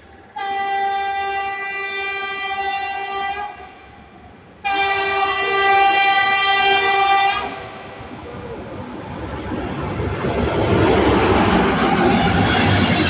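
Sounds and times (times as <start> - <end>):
locomotive horn blasts: 0.3 - 3.8, 4.6 - 7.7.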